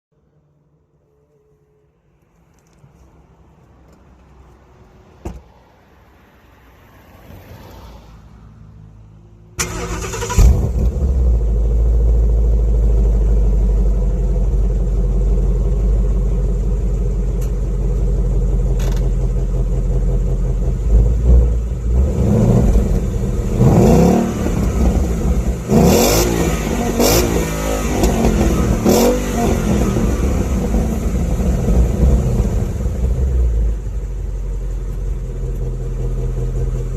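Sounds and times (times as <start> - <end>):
car engine starting and idling: 9.5 - 36.9
engine revving: 9.6 - 11.9, 20.8 - 34.0.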